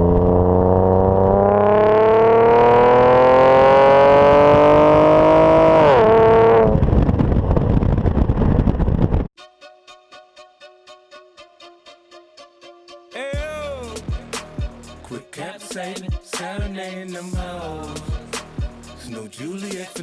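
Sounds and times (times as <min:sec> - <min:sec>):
car exhaust at full throttle: 0:00.0 - 0:09.2.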